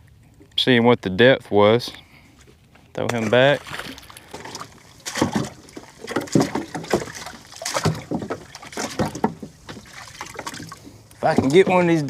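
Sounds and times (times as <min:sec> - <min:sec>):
gear knocking in a boat: 0:04.3 - 0:12.0.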